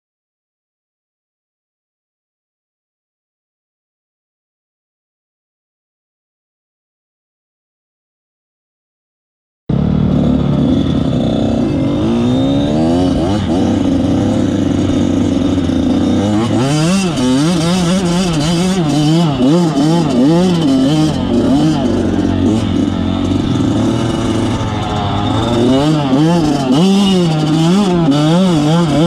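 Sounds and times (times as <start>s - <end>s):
vehicle engine starting and revving: 9.7s - 29.0s.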